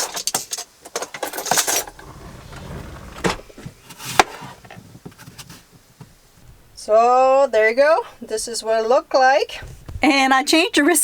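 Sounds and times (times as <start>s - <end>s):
utensil scraping: 1.4s - 5.7s.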